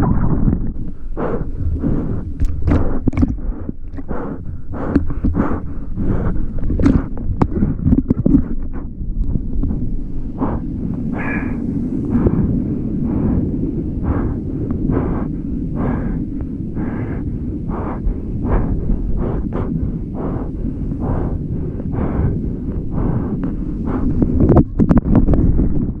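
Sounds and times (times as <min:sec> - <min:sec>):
water splashing rhythmically: 0:00.0 - 0:08.7
wind buffeting microphone: 0:00.0 - 0:26.0.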